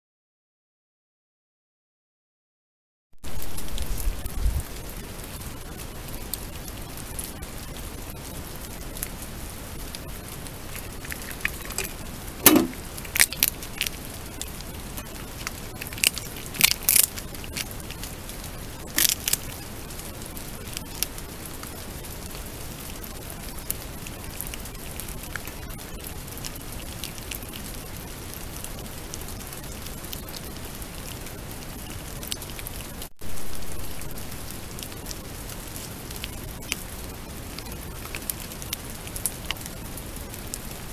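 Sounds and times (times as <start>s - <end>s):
heavy rain falling: 3.2s - 40.9s
sharp clicks and knocks: 11.1s - 13.3s.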